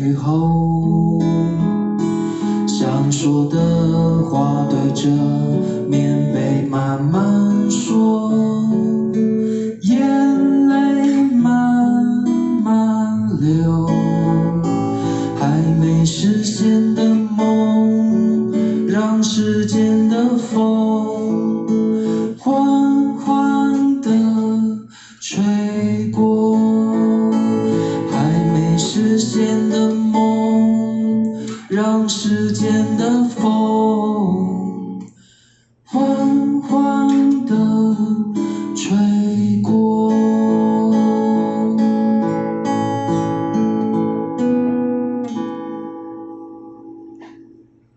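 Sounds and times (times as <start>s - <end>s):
acoustic guitar strumming: 0.0s - 47.9s.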